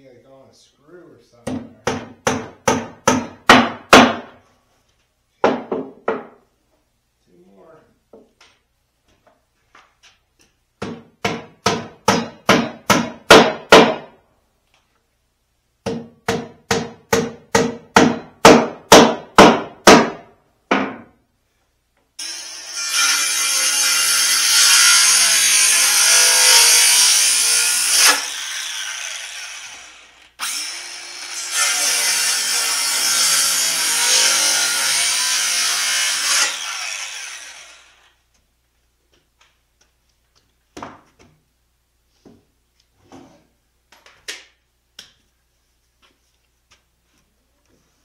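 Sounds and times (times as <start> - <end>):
power drill boring into wood: 22.2 - 38.1.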